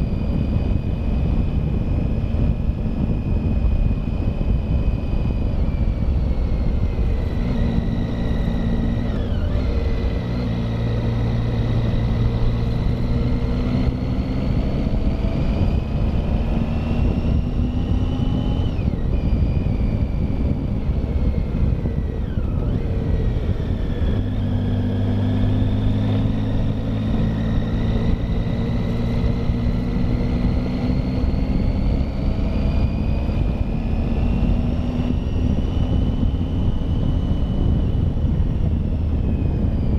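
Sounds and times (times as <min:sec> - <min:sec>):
motorcycle engine accelerating: 0:00.0 - 0:39.9
wind and road noise: 0:00.0 - 0:39.9.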